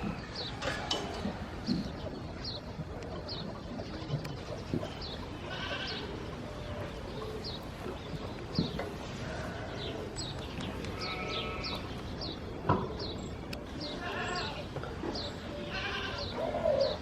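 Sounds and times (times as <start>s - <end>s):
goats and sheep bleating: 5.2s - 6.3s, 9.0s - 10.2s, 10.8s - 11.9s, 13.8s - 14.7s, 15.4s - 16.8s.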